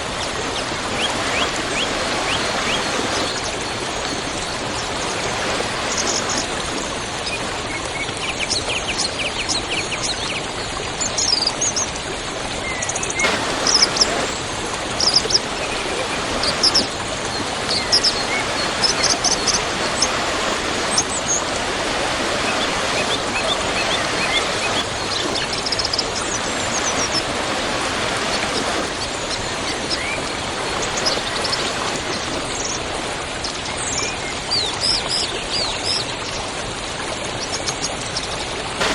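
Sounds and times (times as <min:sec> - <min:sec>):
waterfall rushing: 0:00.0 - 0:07.8, 0:13.2 - 0:34.6
small birds chirping: 0:00.1 - 0:09.3, 0:12.7 - 0:32.9.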